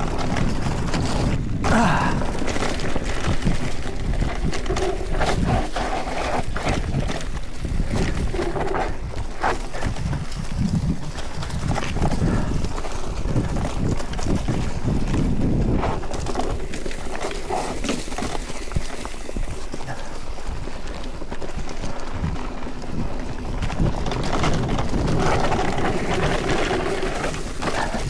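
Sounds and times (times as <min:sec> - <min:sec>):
bike clattering over bumps: 0:00.0 - 0:28.0
bike tyres crunching over stones: 0:00.0 - 0:28.0.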